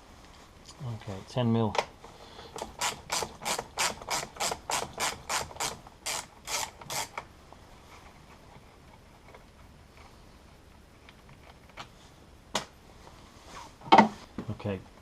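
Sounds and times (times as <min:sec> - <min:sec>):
ratchet wrench clicking: 0:02.6 - 0:07.2.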